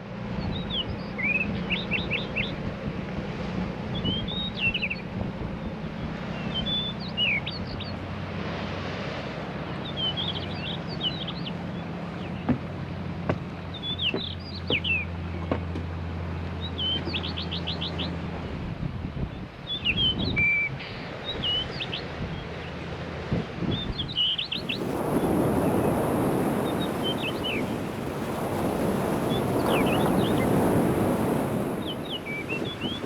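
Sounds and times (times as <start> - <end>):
sea waves washing on shore: 7.0 - 13.7, 23.1 - 33.0.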